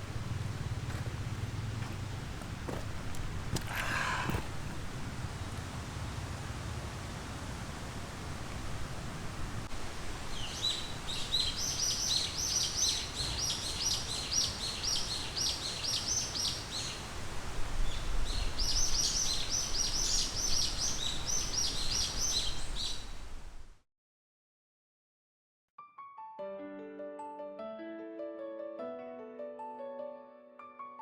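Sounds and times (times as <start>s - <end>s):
songbird singing: 0.0s - 6.6s, 10.2s - 23.4s
low background rumble: 0.0s - 9.7s.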